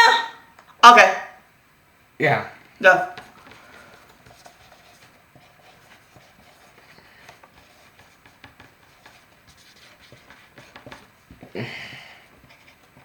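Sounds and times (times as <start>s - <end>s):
markers scratching on whiteboards: 3.2s - 11.5s, 12.3s - 13.0s.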